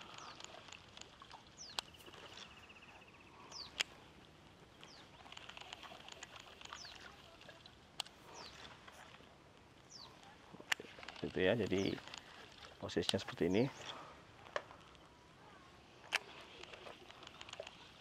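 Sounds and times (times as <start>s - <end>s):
sharp clicks: 0.0s - 2.3s, 3.5s - 4.0s, 4.8s - 7.1s, 16.0s - 17.9s
birds chirping: 0.0s - 18.0s.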